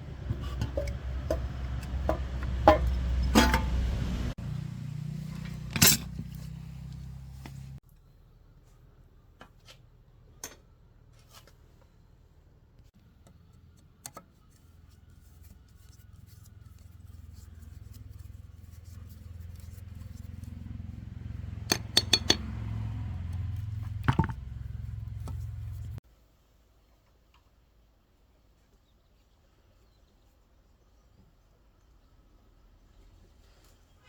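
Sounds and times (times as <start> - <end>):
sharp metallic clicks and taps: 21.7 - 22.5.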